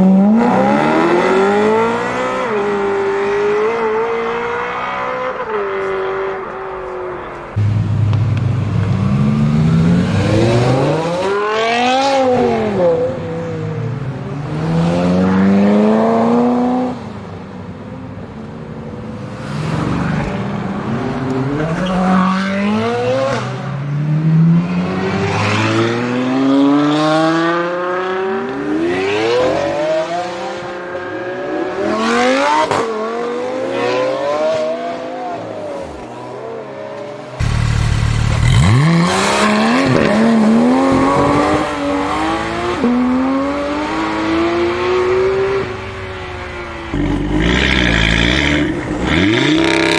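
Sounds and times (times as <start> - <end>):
car engines accelerating hard: 0.0 - 17.4, 37.2 - 49.9.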